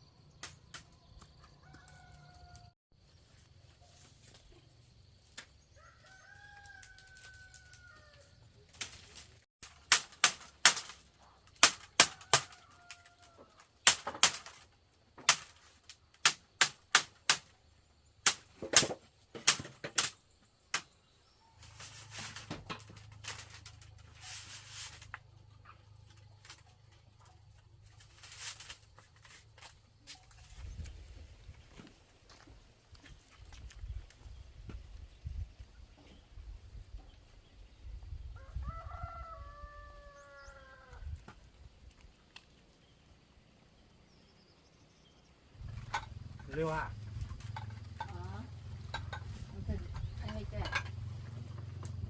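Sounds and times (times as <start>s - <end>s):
rooster crowing: 1.4s - 2.8s, 5.7s - 8.3s, 38.4s - 41.1s
scraping or rustling: 21.5s - 32.1s.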